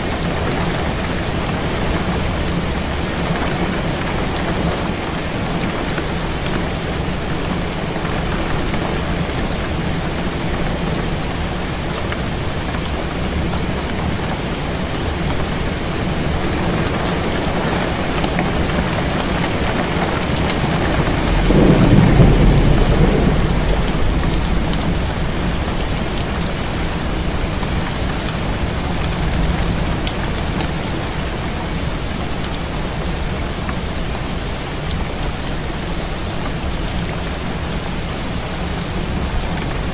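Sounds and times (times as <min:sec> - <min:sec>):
heavy rain on a window: 0:00.0 - 0:39.9
low rumble of thunder: 0:19.2 - 0:30.3.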